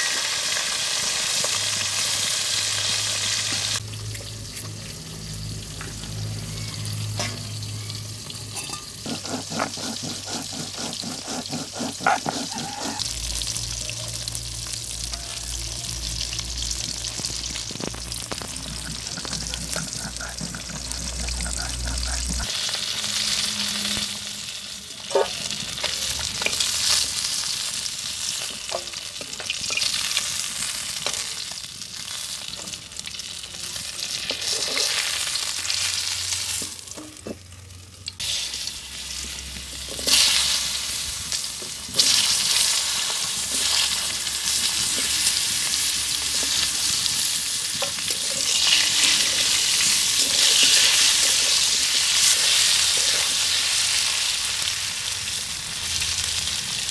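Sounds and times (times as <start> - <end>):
hot oil sizzling in a wok: 0.0 - 56.9
spatula scraping a wok: 8.6 - 13.2, 39.2 - 40.8, 47.7 - 53.8.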